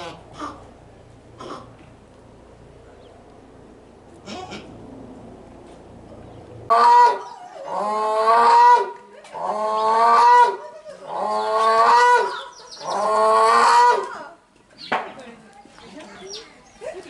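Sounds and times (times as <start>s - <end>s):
animal calling loudly: 6.7s - 14.3s.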